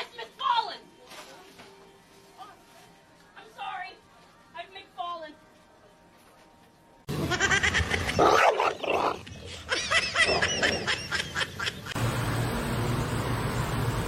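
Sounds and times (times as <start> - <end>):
dog barking and yipping: 8.1 - 9.2.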